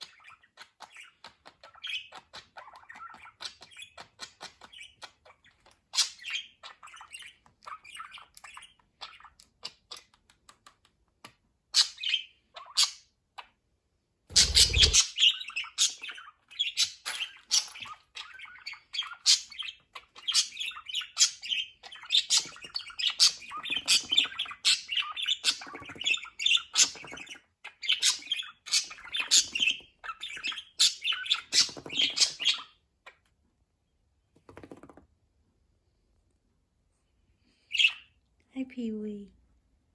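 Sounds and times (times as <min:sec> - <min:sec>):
budgerigars chirping and chattering: 0:00.0 - 0:10.3, 0:11.7 - 0:13.1, 0:14.3 - 0:32.8, 0:37.7 - 0:38.1.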